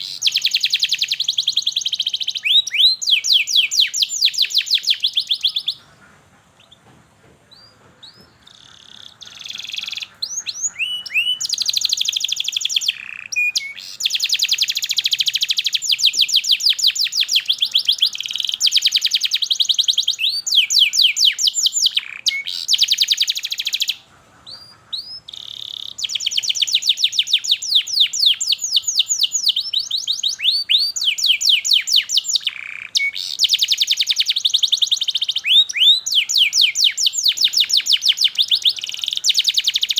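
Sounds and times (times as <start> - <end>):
canary singing rapid trills: 0.0 - 6.8, 7.5 - 39.9.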